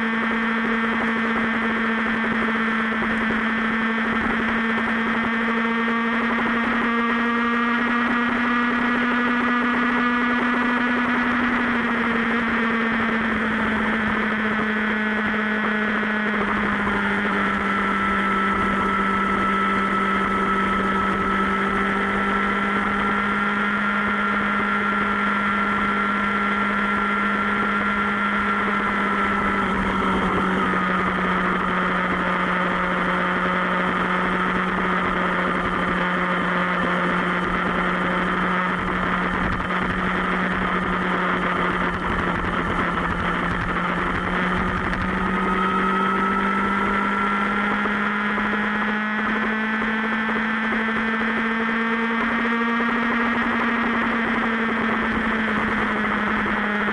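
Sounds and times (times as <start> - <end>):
motorcycle engine droning: 0.0 - 56.9.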